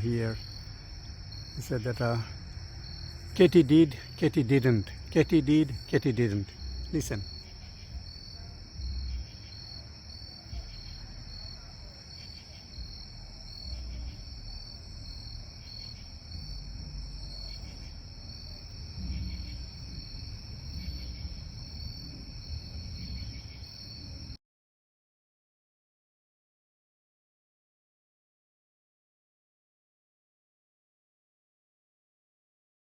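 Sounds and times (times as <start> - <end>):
high insect trill: 0.0 - 24.4.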